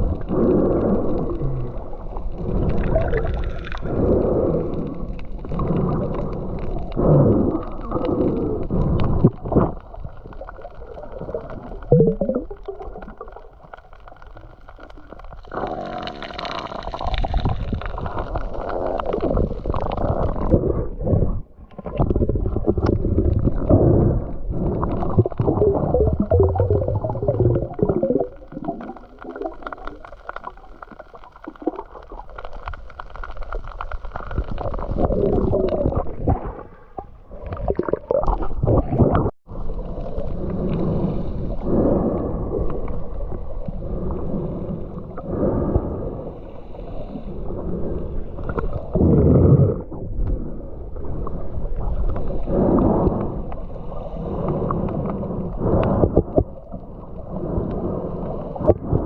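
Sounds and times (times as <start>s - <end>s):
muffled sloshing sea water: 33.8s - 59.0s.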